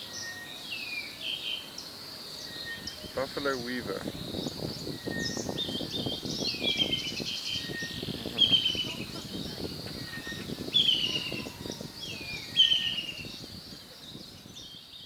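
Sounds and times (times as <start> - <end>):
birds calling with chattering phrases: 0.0 - 15.0
flock twittering: 2.5 - 13.4.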